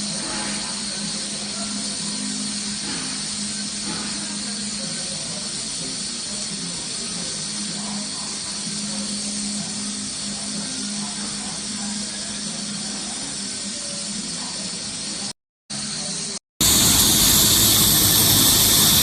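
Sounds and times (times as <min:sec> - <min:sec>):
welding arc hissing: 0:00.0 - 0:19.0
low hum: 0:16.6 - 0:19.0.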